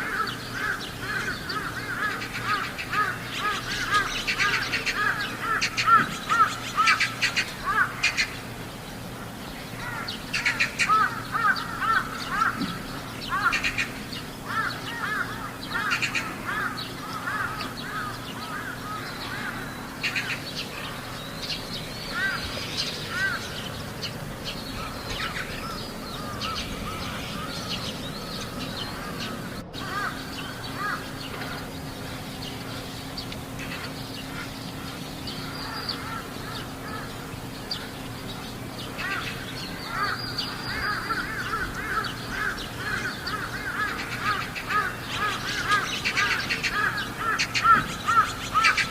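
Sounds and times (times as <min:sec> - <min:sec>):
crows cawing: 0:00.0 - 0:08.5, 0:09.2 - 0:38.0, 0:38.9 - 0:48.9.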